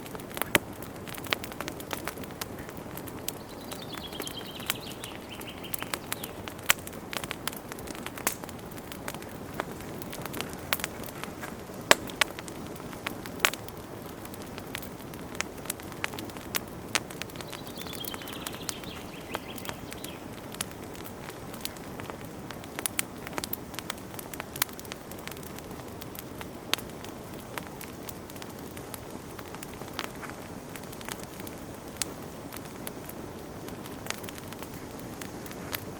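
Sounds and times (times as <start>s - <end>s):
low rush of flame: 0.0s - 35.9s
wood fire crackling and popping: 0.0s - 35.9s.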